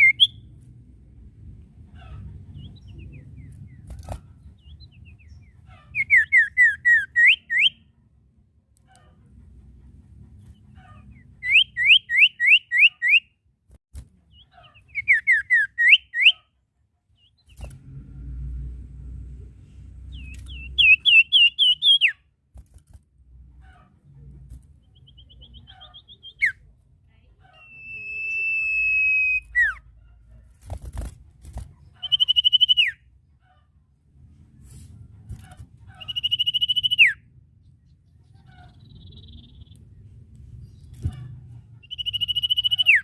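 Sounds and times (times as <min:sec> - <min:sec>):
songbird whistled calls: 0:00.0 - 0:00.4, 0:06.0 - 0:07.8, 0:11.4 - 0:13.3, 0:20.1 - 0:22.2, 0:27.6 - 0:29.8, 0:32.0 - 0:33.0, 0:36.0 - 0:37.2, 0:41.8 - 0:43.0
faint low rumble: 0:00.2 - 0:05.9, 0:17.1 - 0:20.8.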